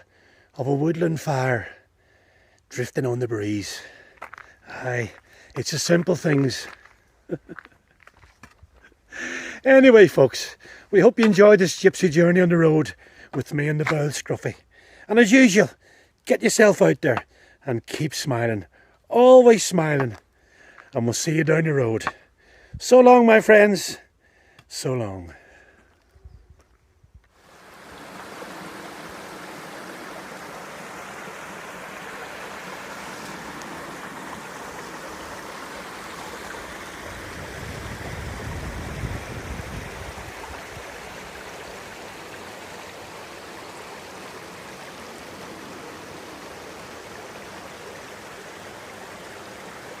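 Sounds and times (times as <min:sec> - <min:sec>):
stream water rushing: 0:27.4 - 0:50.0.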